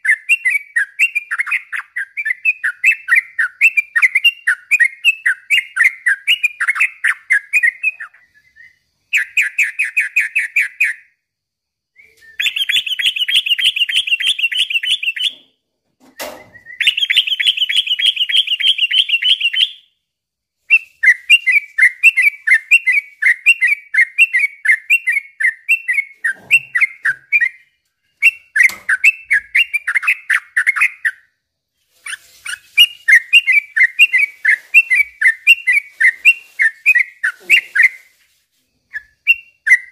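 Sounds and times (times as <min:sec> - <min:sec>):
bird chattering song: 0:00.0 - 0:11.1, 0:12.3 - 0:15.4, 0:16.7 - 0:19.9, 0:20.8 - 0:31.3.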